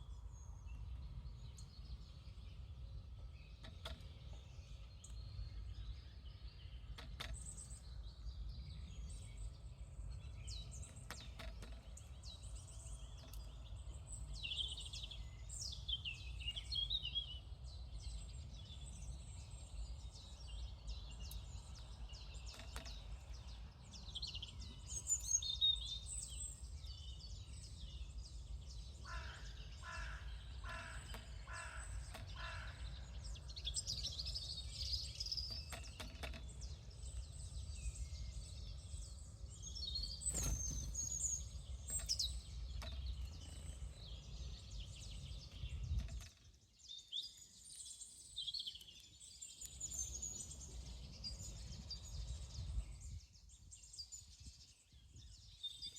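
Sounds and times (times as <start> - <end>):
birds chirping and calling: 1.1 - 54.3
crow-like caws: 29.0 - 33.0.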